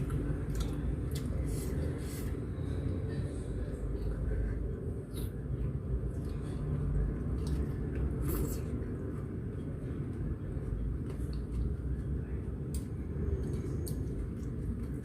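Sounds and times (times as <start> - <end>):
wet chewing: 0.0 - 1.4.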